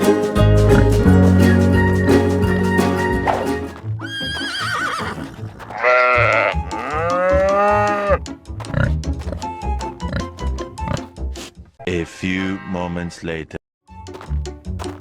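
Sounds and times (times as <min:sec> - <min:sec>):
background music: 0:00.0 - 0:11.6, 0:13.9 - 0:15.0
farm animal calls: 0:03.2 - 0:11.1.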